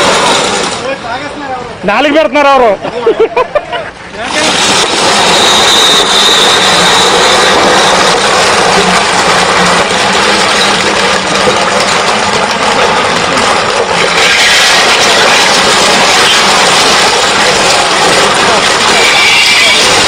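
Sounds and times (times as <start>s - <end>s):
road roller engine running: 0.0s - 2.0s, 3.8s - 20.0s
glass bottles being crushed: 4.3s - 20.0s.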